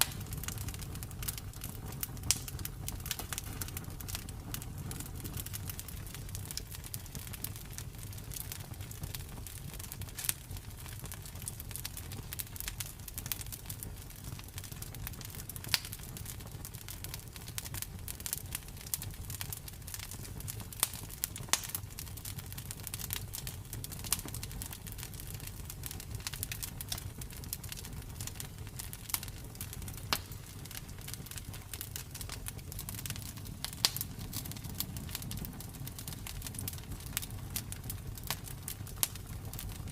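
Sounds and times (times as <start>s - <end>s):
campfire crackling: 0.0s - 39.9s
wood popping: 29.9s - 37.2s.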